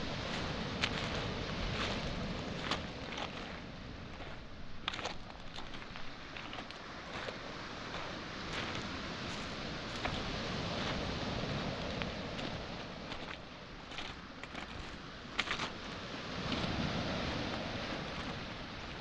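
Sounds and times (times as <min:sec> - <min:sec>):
footsteps on pebbles: 0:00.0 - 0:11.1, 0:12.0 - 0:15.8
waves breaking on pebble shore: 0:00.0 - 0:19.0.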